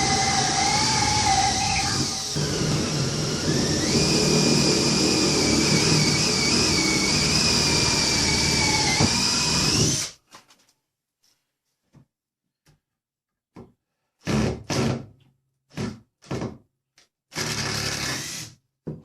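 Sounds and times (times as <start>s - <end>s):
power drill running: 0.0s - 10.1s, 17.4s - 18.5s.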